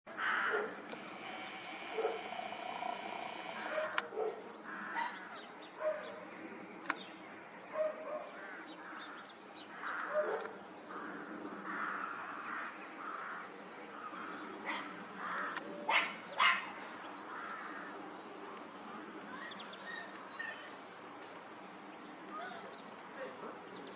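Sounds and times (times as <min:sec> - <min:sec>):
background hiss: 0:00.9 - 0:04.0
dog barking: 0:02.0 - 0:02.2, 0:04.1 - 0:05.2, 0:05.8 - 0:06.2, 0:07.8 - 0:08.4, 0:10.1 - 0:10.5, 0:15.9 - 0:16.7.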